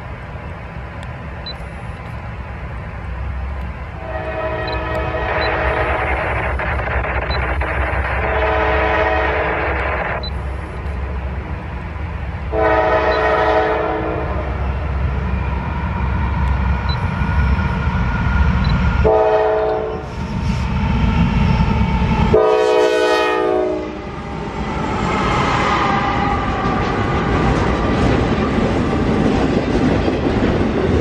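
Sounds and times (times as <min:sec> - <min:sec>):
low rumble of train: 0:00.0 - 0:31.0
locomotive air horn blasts: 0:04.0 - 0:06.0, 0:08.2 - 0:09.9, 0:12.5 - 0:14.6, 0:19.0 - 0:20.1, 0:22.3 - 0:24.0.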